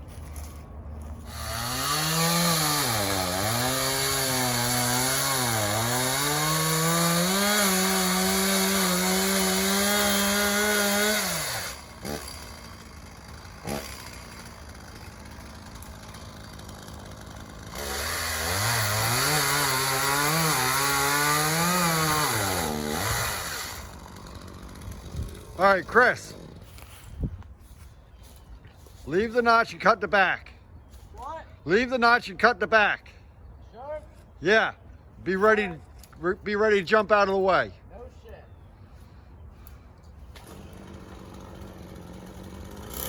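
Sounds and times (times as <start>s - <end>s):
chainsaw engine revving: 1.2s - 26.8s, 40.2s - 43.0s.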